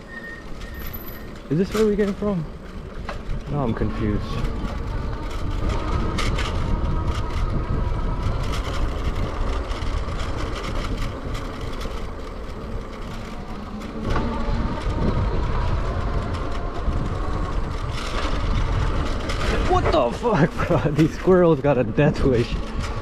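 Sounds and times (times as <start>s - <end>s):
bike tyre rumble: 0.0s - 23.0s
wind buffeting microphone: 0.9s - 23.0s
electric motor whine: 11.1s - 19.3s.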